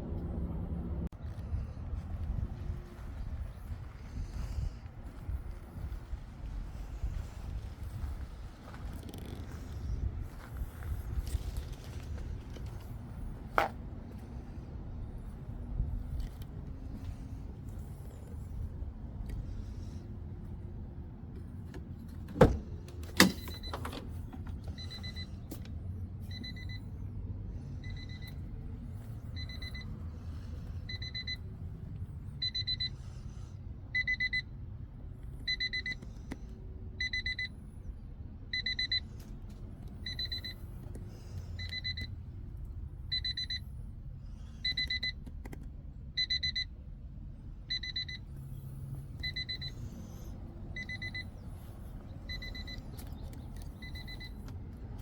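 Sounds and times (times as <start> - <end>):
car warning chime beeping: 23.2 - 25.5, 26.2 - 34.7, 35.4 - 37.6, 38.4 - 39.2, 39.9 - 43.8, 44.6 - 45.3, 46.1 - 46.9, 47.6 - 55.0.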